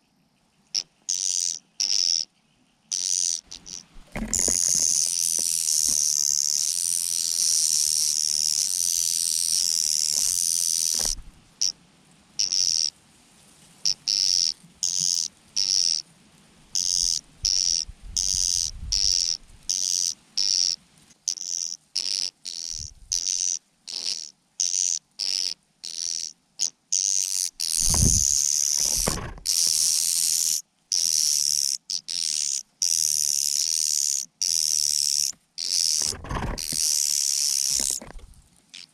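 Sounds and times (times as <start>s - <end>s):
dull thumps: 4.0s - 5.0s, 27.8s - 29.5s, 36.0s - 36.9s, 37.7s - 38.4s.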